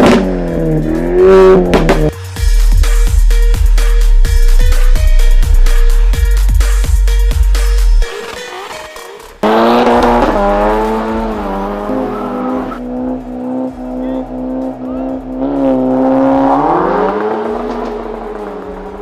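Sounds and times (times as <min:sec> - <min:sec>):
car engine revving: 0:00.0 - 0:02.2, 0:09.4 - 0:19.0
music: 0:00.0 - 0:19.0.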